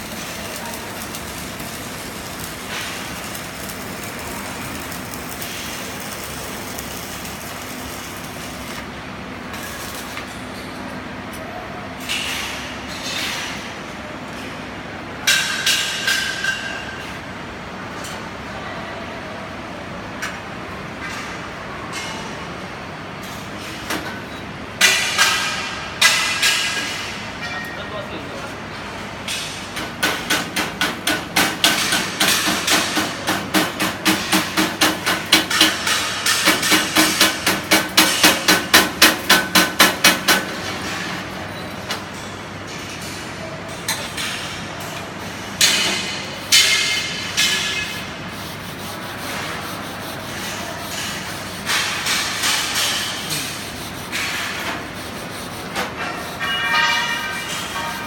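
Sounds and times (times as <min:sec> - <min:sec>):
hammer striking metal: 0:29.3 - 0:41.0, 0:45.6 - 0:48.0.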